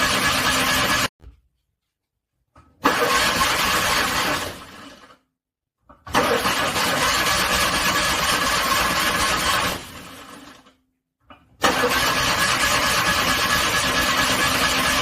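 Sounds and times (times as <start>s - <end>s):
car engine cranking on starter: 2.8s - 5.1s, 6.1s - 10.6s, 11.6s - 15.0s.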